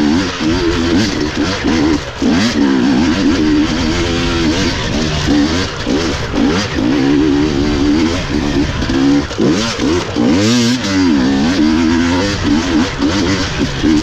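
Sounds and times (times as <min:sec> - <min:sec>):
two-stroke engine revving: 0:00.0 - 0:14.0.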